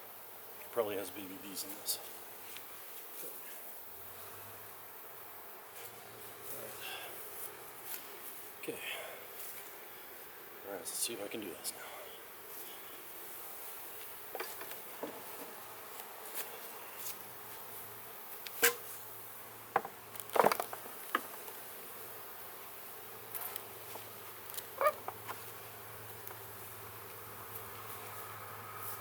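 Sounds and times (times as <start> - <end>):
honeybees buzzing: 0.3 - 29.0
wooden hive boxes knocking: 19.7 - 21.5.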